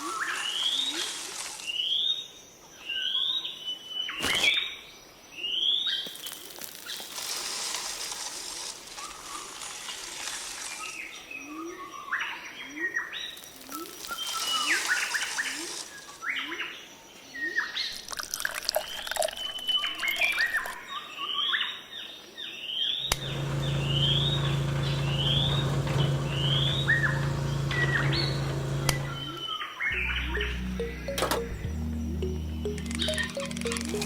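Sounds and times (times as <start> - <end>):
songbirds chirping: 19.4 - 34.0
low machine hum: 23.1 - 34.0.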